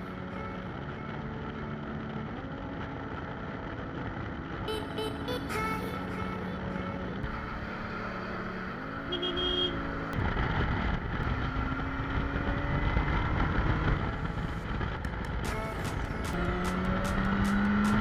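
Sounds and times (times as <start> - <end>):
motorcycle engine accelerating: 7.1 - 18.0.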